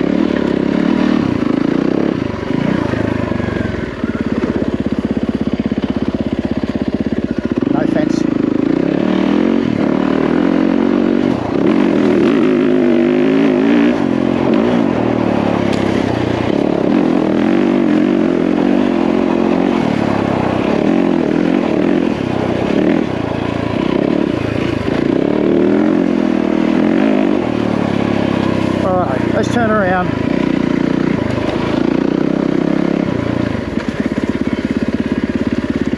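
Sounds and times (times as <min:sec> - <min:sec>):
dirt bike engine running: 0:00.0 - 0:35.9.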